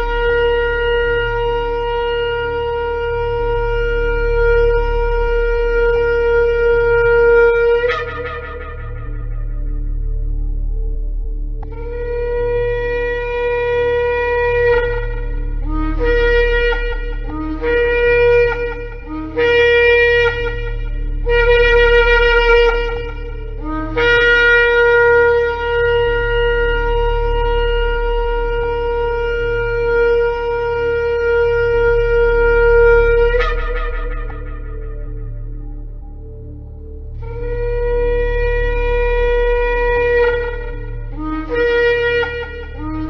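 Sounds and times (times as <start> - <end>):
ram's horn blasts: 11.6 - 43.0.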